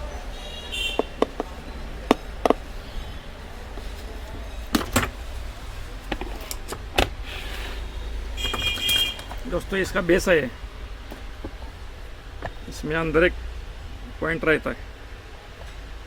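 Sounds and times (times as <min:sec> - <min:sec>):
kettle parts clicking and knocking: 0:00.9 - 0:02.7, 0:04.3 - 0:05.3, 0:06.0 - 0:07.2, 0:08.4 - 0:09.8.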